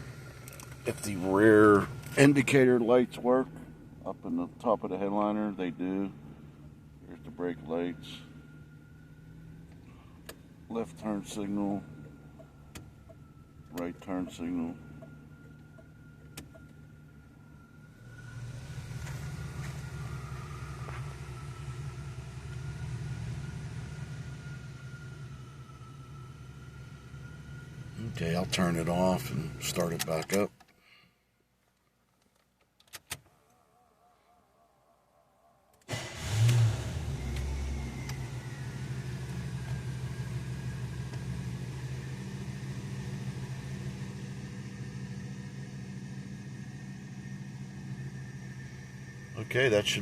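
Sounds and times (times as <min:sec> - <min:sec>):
car engine idling: 0:00.0 - 0:31.0, 0:35.7 - 0:50.0.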